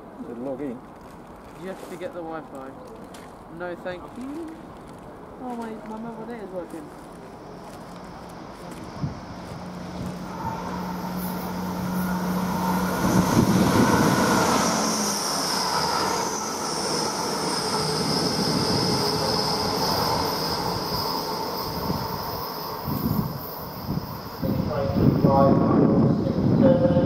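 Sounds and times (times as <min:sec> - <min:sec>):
wheels rumbling on rails: 0:00.7 - 0:27.0
diesel train engines running: 0:06.0 - 0:27.0
high steady whine: 0:07.4 - 0:27.0.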